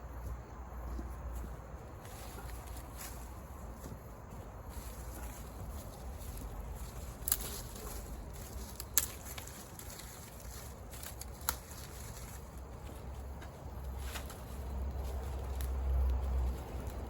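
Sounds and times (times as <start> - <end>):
campfire wood popping: 6.0 - 17.0.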